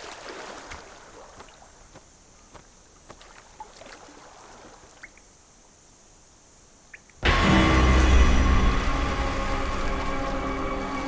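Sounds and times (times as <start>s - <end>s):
trickling cave water: 0.0s - 11.0s
deep ominous music: 7.2s - 11.0s.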